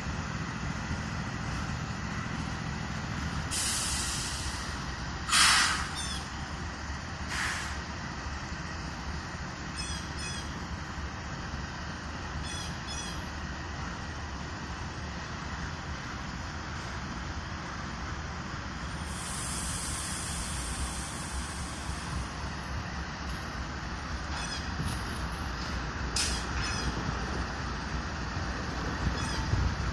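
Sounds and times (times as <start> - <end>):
diesel locomotives idling: 0.0 - 29.9
air brakes hissing: 3.3 - 6.3, 7.2 - 7.8, 18.8 - 23.5.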